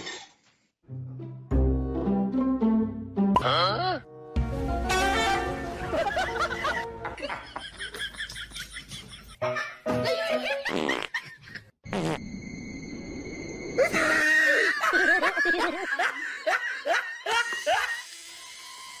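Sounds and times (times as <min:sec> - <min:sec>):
person laughing hard: 0:05.9 - 0:09.4, 0:13.8 - 0:18.0.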